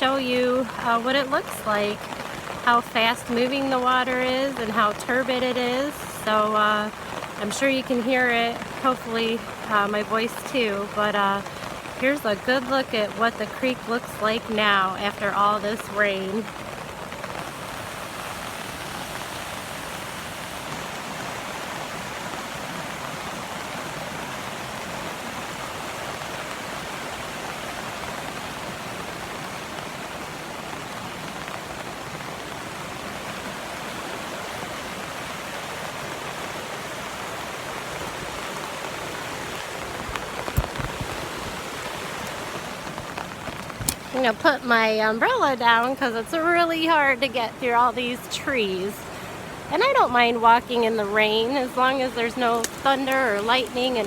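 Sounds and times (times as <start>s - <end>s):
creek water rushing: 0.0s - 54.0s
rain falling: 0.0s - 54.0s.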